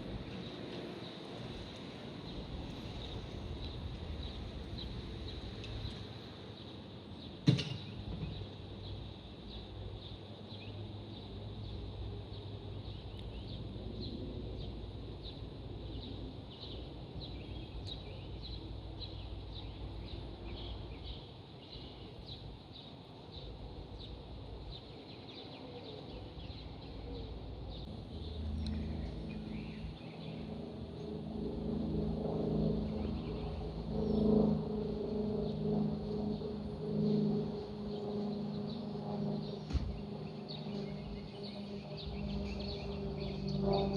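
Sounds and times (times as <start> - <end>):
bird chirping: 40.3 - 43.9.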